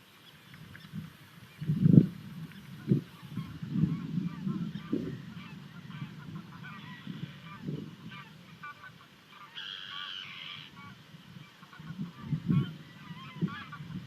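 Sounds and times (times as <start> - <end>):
kestrel chicks begging calls: 2.7 - 11.0.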